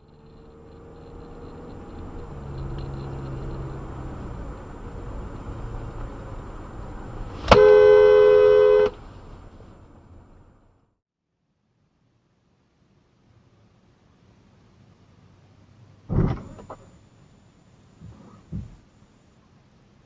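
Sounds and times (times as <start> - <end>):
car road and engine noise: 0.0 - 11.0, 12.6 - 20.0
two-tone car horn blast: 7.3 - 9.1.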